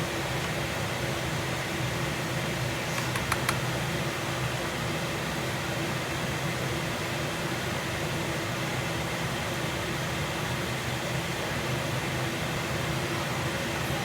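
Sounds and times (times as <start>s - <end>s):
light clicks: 2.9s - 3.7s.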